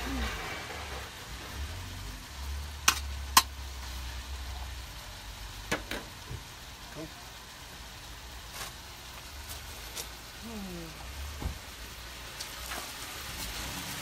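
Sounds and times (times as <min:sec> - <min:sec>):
bacon sizzling in a pan: 0:00.0 - 0:14.0
metal utensil clicking on pan: 0:02.8 - 0:03.5.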